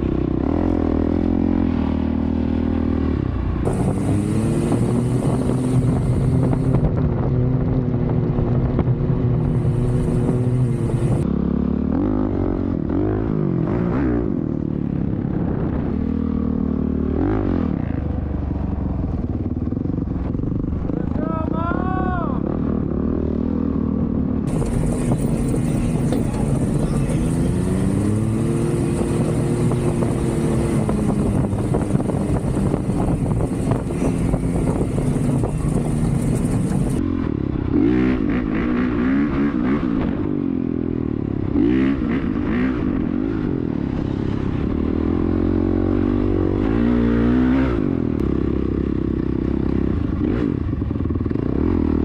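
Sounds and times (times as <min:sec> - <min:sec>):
off-road vehicle engine revving: 0:00.0 - 0:06.9, 0:09.4 - 0:11.2, 0:24.5 - 0:40.3
wind rumble on microphone: 0:00.0 - 0:11.3, 0:12.2 - 0:52.0.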